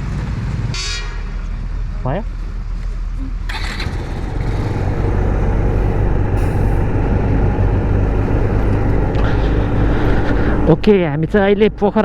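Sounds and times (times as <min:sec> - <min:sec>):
road and wind noise: 0:00.0 - 0:12.0
motorcycle engine riding off: 0:03.5 - 0:11.0.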